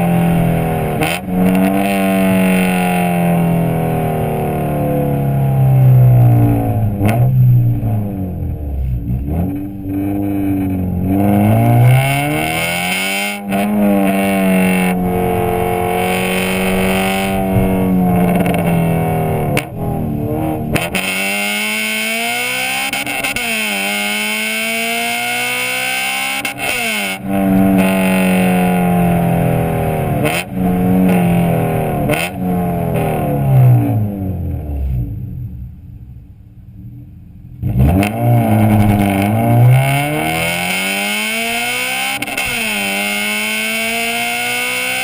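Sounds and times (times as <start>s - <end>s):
car engine revving hard: 0.0s - 35.1s, 37.6s - 45.0s.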